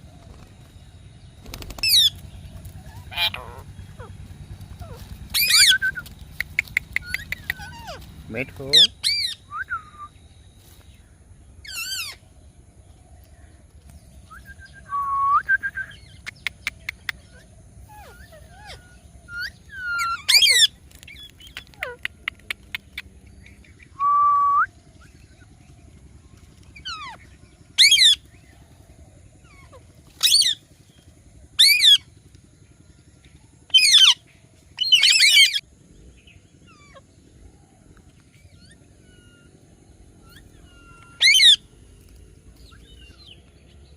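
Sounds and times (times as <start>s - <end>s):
parakeet screeching: 2.8s - 4.2s, 4.8s - 6.0s, 7.0s - 8.1s, 8.7s - 9.4s, 11.6s - 12.2s, 18.0s - 20.7s, 27.8s - 28.2s, 34.8s - 35.6s, 40.2s - 41.6s
bird whistles: 4.8s - 8.0s, 8.8s - 10.2s, 14.3s - 17.1s, 23.9s - 24.8s
bird clicks: 5.9s - 7.7s, 16.2s - 17.2s, 20.9s - 23.1s.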